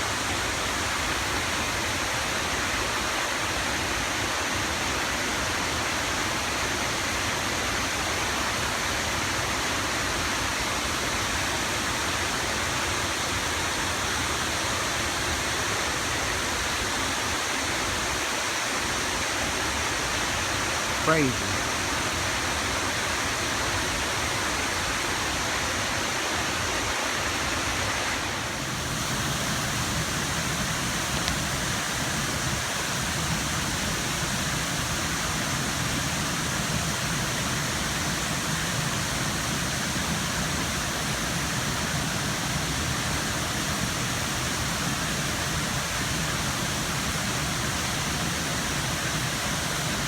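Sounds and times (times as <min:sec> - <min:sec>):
river rushing below a dam: 0:00.0 - 0:50.0.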